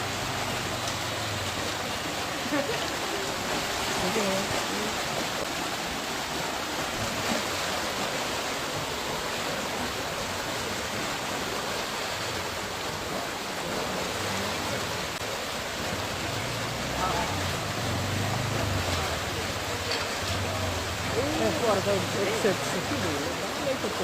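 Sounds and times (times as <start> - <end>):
floodwater rushing: 0.0 - 24.0.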